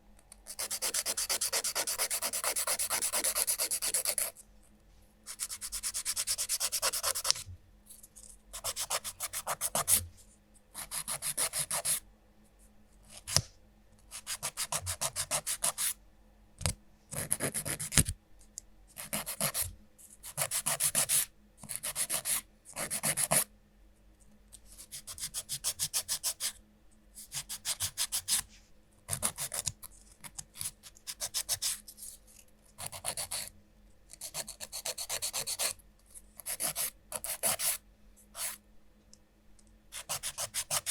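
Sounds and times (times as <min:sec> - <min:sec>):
nail file rasping on fingernails: 0:00.5 - 0:04.3, 0:40.0 - 0:40.9.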